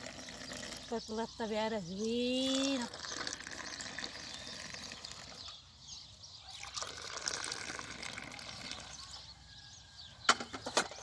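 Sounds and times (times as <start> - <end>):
tea pouring into a glass: 2.4 - 5.3, 6.4 - 9.0.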